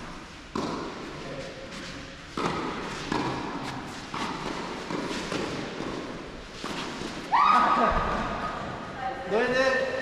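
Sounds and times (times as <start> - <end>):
tennis balls struck and bouncing: 0.0 - 1.2, 2.3 - 7.3.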